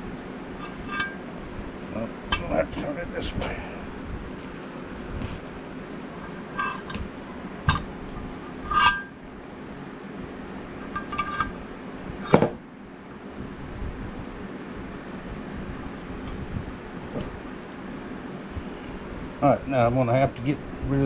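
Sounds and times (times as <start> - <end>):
steel parts clinking and knocking: 6.2 - 7.1, 7.7 - 9.2, 10.8 - 11.6.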